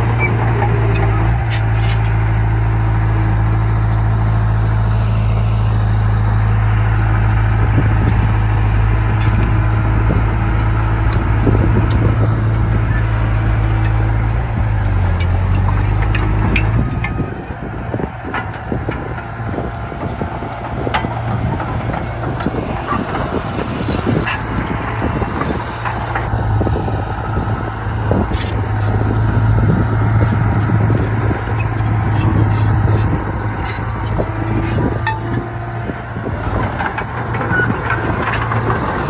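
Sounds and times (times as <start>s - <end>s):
heavy diesel machinery engine drone: 0.0s - 39.0s
metallic clanks and rattles: 6.8s - 26.3s, 28.1s - 39.0s.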